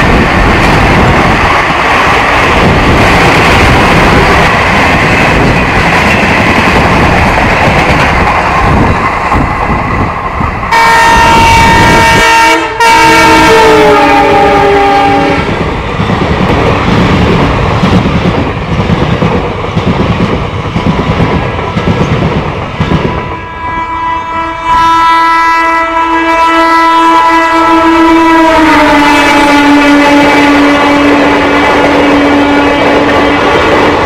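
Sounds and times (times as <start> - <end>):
railway coaches clattering: 0.0 - 34.0
train horn blast: 10.7 - 15.6, 23.2 - 33.4.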